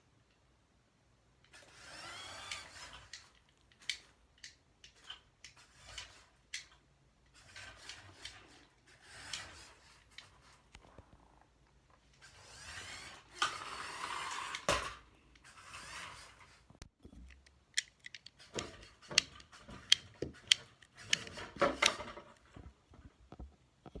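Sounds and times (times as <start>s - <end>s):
plastic rubbing and scraping: 13.1s - 24.0s
plastic bricks clicking: 17.1s - 22.4s.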